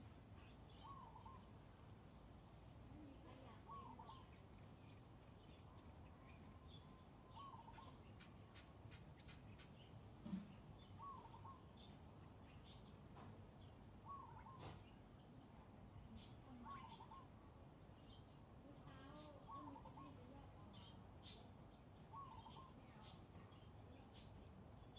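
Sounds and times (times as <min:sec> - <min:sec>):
steady high hiss: 0:00.0 - 0:03.6.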